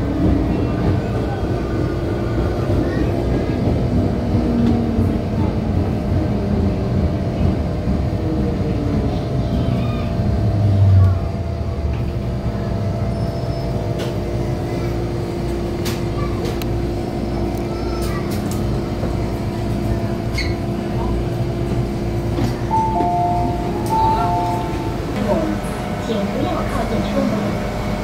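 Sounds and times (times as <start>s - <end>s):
faint voices: 0.0s - 28.0s
train electrical hum: 0.0s - 28.0s.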